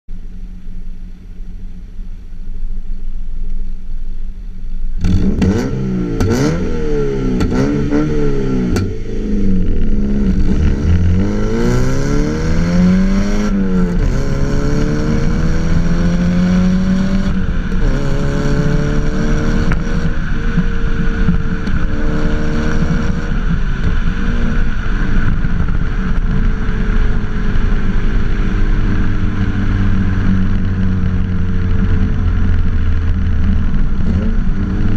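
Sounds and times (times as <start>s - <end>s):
car engine idling and revving: 0.1s - 34.9s.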